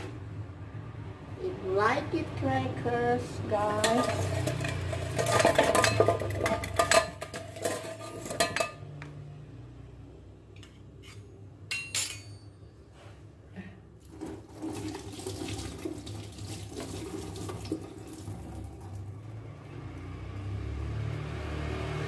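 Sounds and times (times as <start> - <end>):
metal utensil clinks: 11.7 - 12.6.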